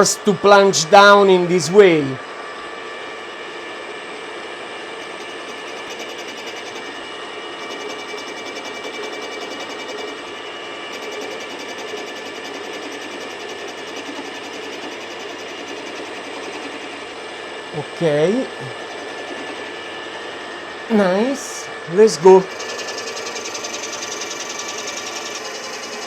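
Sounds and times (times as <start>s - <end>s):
grinding wheel cutting steel: 22.5s - 26.0s.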